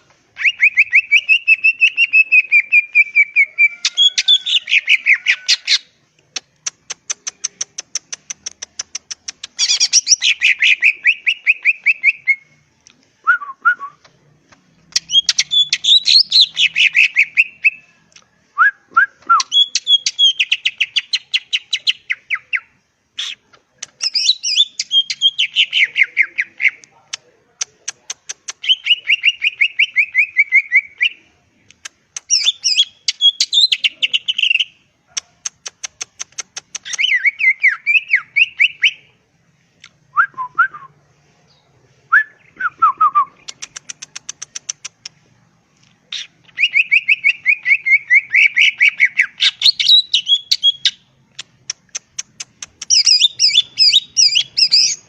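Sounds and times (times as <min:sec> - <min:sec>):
bird singing whistled trills: 0:00.4 - 0:05.8, 0:14.9 - 0:17.8, 0:18.6 - 0:22.7, 0:46.2 - 0:51.0, 0:52.9 - 0:55.0.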